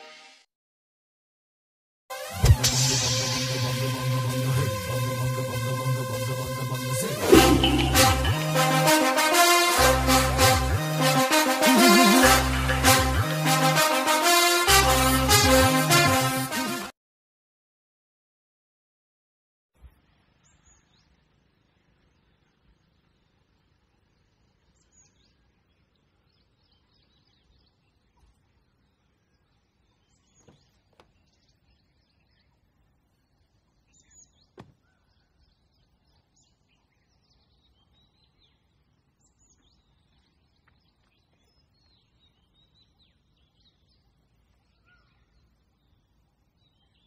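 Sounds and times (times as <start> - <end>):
faint birdsong chirps and whistles: 19.9 - 47.0.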